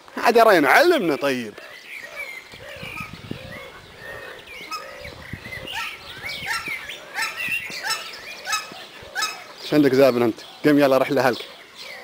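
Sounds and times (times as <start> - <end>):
birds chirping: 0.0 - 12.0
low bird call: 1.6 - 10.7.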